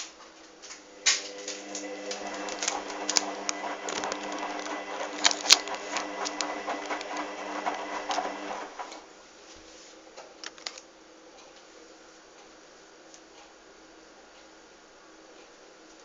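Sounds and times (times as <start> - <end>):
washing machine motor humming: 0.7 - 9.2.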